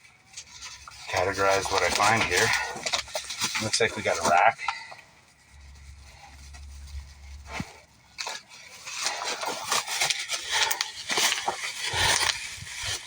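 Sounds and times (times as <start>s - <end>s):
packaging rustling: 0.0s - 13.0s
metal parts scraping and knocking: 7.4s - 13.0s.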